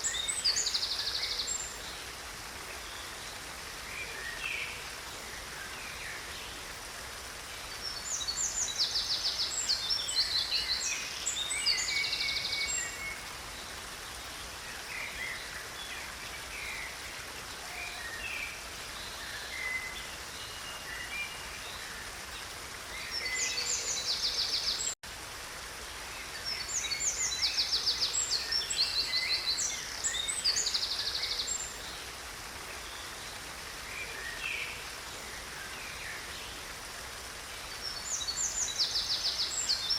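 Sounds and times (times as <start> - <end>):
stream water rushing: 0.0 - 39.9
songbirds singing trills: 7.5 - 25.0.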